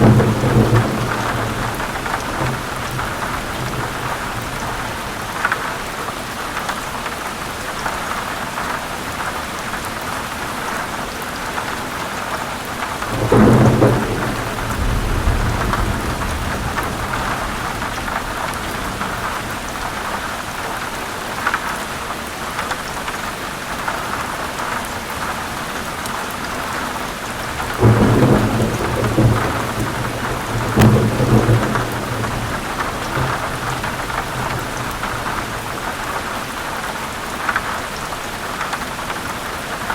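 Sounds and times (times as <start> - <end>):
low thunder rumbles: 0.0 - 5.2, 13.0 - 20.2, 27.4 - 36.4
heavy rain on leaves: 0.0 - 39.9.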